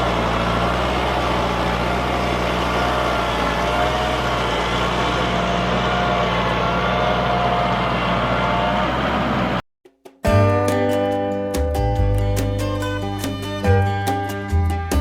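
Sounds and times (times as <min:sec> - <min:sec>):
tractor diesel engine running: 0:00.0 - 0:09.6, 0:10.4 - 0:15.0.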